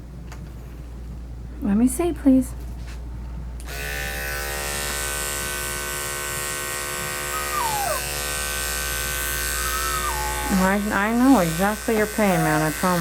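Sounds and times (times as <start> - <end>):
electric clippers buzzing: 3.6 - 13.0
short falling whine: 7.2 - 8.4, 9.6 - 11.0.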